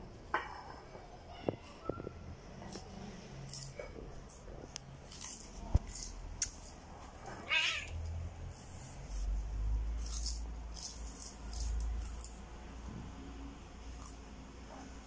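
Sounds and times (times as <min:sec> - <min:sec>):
cat meowing: 0:07.3 - 0:08.0.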